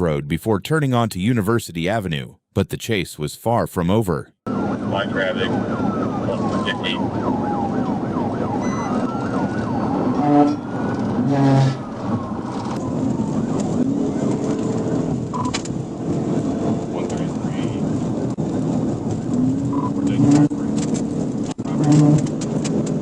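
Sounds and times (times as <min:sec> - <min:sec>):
police siren sweeping: 0:04.5 - 0:22.1
horn blasts: 0:10.1 - 0:11.8.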